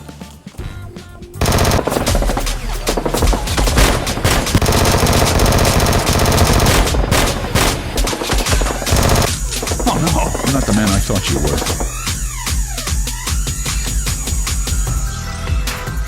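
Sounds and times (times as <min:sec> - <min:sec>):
machine-gun burst: 0:01.4 - 0:13.2.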